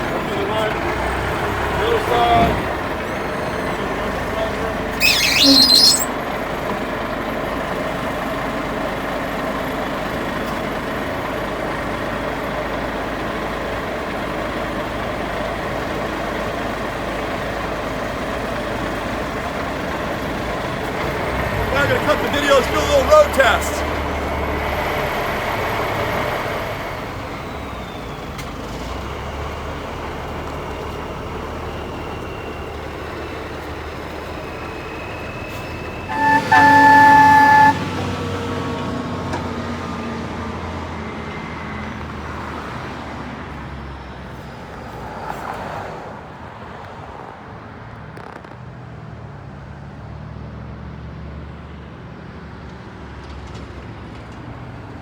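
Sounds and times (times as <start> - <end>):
diesel truck engine running: 0.0 - 42.2
truck horn blast: 5.0 - 6.1, 36.1 - 38.2.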